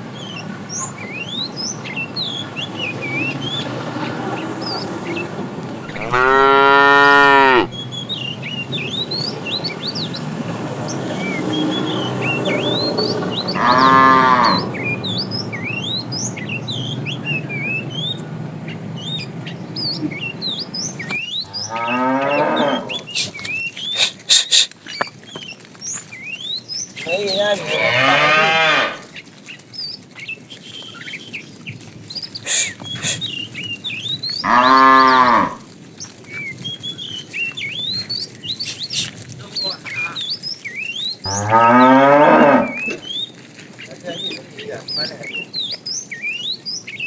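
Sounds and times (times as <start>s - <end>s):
cows mooing: 2.3s - 7.8s, 10.2s - 15.2s, 21.4s - 23.3s, 27.1s - 29.1s, 34.4s - 35.7s, 41.2s - 43.1s.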